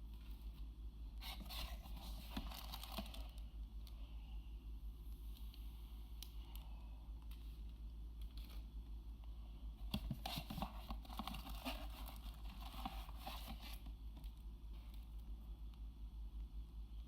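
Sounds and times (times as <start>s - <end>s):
steady low hum: 0.0s - 17.0s
packaging rustling and scraping: 1.2s - 3.4s, 9.9s - 13.9s.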